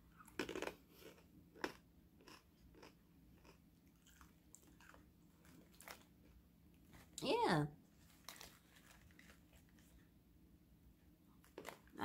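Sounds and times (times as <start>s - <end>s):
person chewing crunchy snack: 0.1s - 6.4s.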